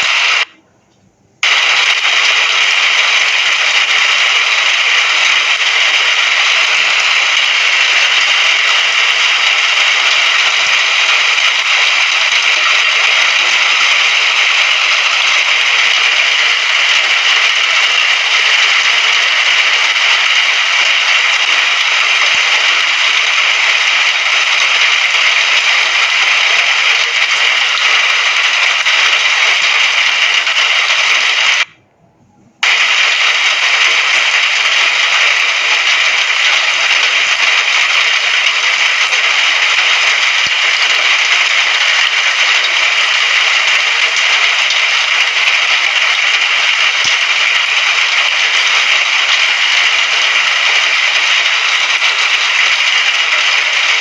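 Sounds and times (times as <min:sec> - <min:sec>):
rain falling: 0:01.4 - 0:31.7, 0:32.6 - 0:54.0.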